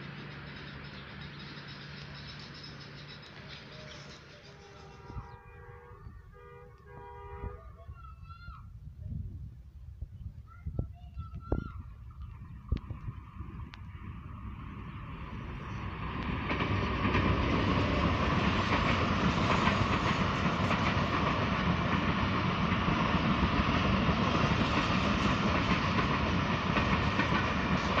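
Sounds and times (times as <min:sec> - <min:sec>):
diesel train passing: 0:00.0 - 0:08.5, 0:11.9 - 0:28.0
wheels clicking over rail joints: 0:12.7 - 0:28.0.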